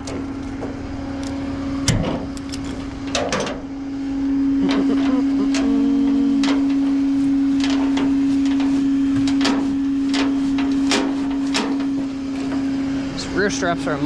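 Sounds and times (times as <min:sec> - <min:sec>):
sharp clicks and knocks: 0:00.0 - 0:03.6
steady low hum: 0:00.0 - 0:14.0.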